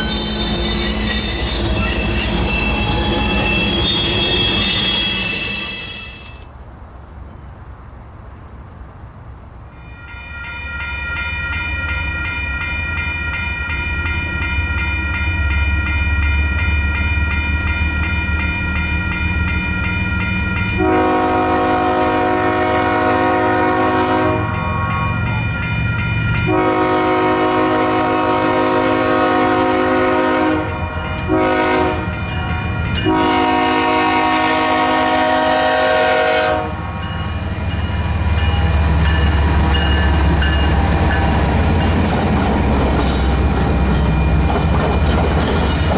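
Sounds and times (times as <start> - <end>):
diesel locomotive horn blasts: 0.0 - 6.4, 20.7 - 25.5, 26.4 - 37.2
locomotive engine rumbling: 0.0 - 9.7, 10.8 - 45.9.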